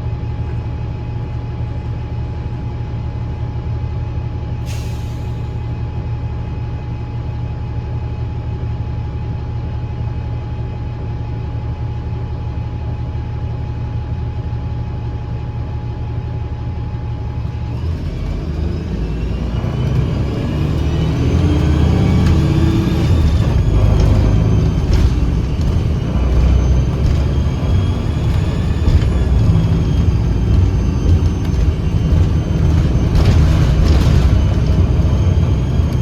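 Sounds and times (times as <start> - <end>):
bus engine rumble: 0.0 - 12.2, 15.2 - 36.0
whistling whine rising in pitch: 17.4 - 36.0.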